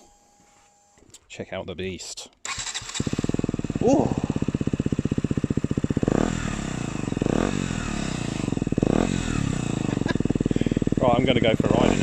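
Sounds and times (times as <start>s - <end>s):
motorcycle engine idling and revving: 2.4s - 12.0s.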